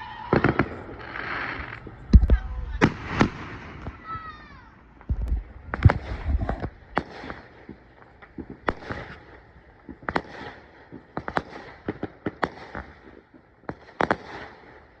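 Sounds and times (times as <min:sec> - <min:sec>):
fireworks popping and banging: 0:00.1 - 0:04.4, 0:05.0 - 0:15.0.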